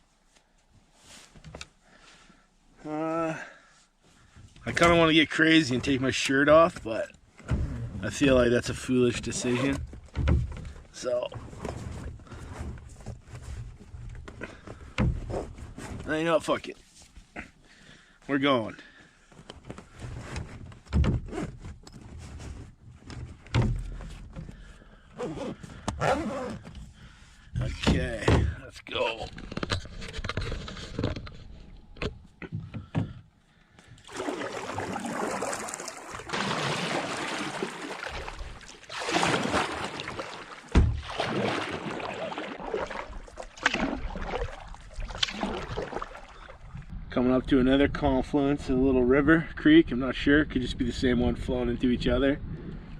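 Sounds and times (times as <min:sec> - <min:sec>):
dull knocks in a canoe: 0:09.8 - 0:16.1, 0:34.1 - 0:42.0
paddle splashing through water: 0:34.0 - 0:46.9
sharp thump: 0:40.7 - 0:41.1.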